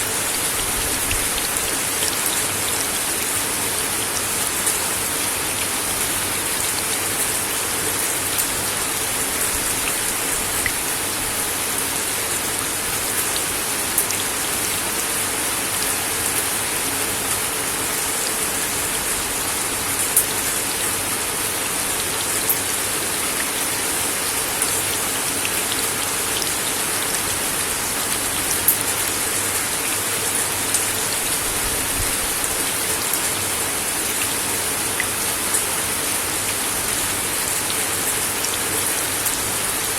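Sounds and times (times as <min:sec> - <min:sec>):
rain hissing: 0:00.0 - 0:16.2.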